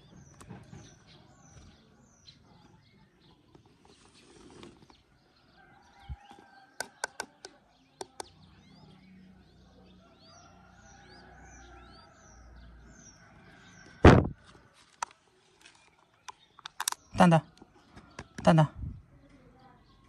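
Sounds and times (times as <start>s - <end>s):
loud thump: 14.0s - 14.4s
sharp clicks: 16.2s - 17.2s.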